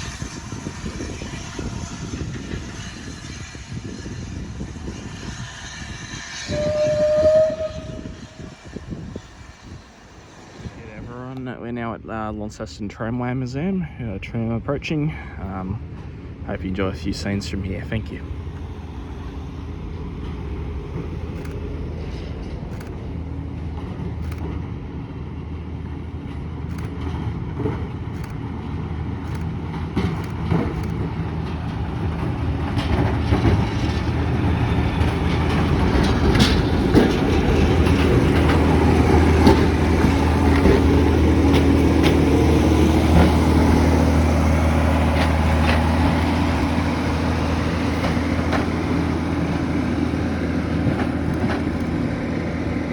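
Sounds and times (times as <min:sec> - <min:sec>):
electric tram motor hum: 0:00.0 - 0:11.6, 0:15.8 - 0:52.9
wheels clicking on rails: 0:16.5 - 0:24.8, 0:26.0 - 0:52.9.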